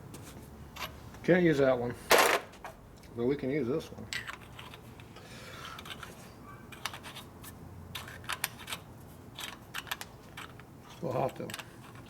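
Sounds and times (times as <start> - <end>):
metal parts clicking and clinking: 7.9 - 8.8, 9.4 - 12.0.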